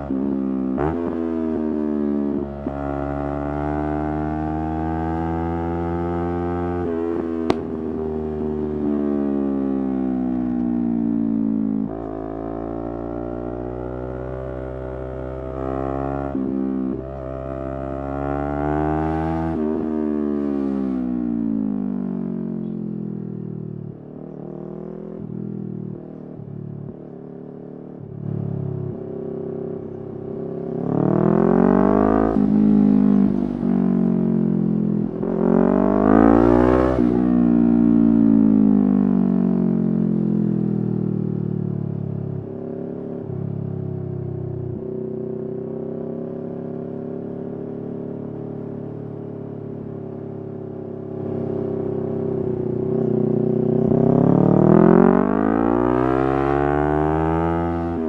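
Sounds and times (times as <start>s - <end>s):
motorcycle engine revving: 0.0s - 10.6s, 28.0s - 41.0s, 41.9s - 58.0s.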